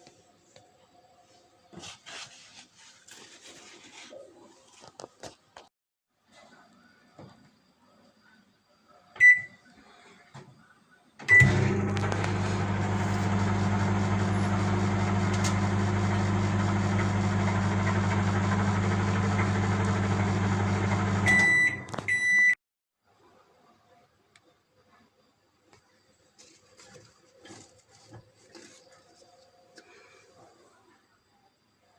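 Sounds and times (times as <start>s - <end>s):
microwave end beeps: 9.2s - 9.6s, 11.2s - 22.6s
microwave keypad beep: 9.2s - 9.6s, 11.3s - 11.6s, 21.2s - 22.6s
microwave oven humming: 11.2s - 22.5s.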